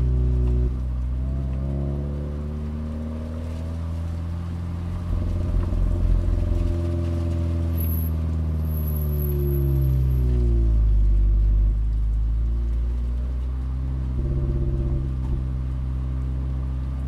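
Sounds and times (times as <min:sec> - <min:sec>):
car engine revving from inside cabin: 0:00.0 - 0:03.7, 0:14.0 - 0:15.6.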